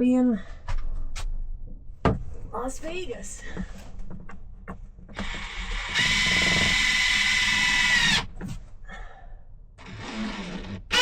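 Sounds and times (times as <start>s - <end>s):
power drill whining: 5.2s - 8.3s, 9.8s - 11.0s.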